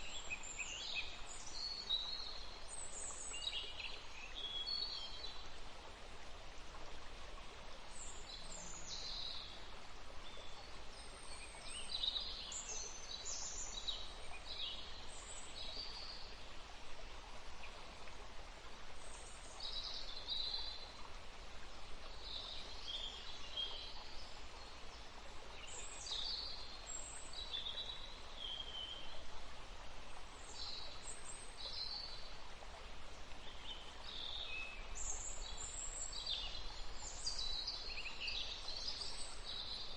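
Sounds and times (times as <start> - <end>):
outdoor background hiss: 0.0 - 39.9.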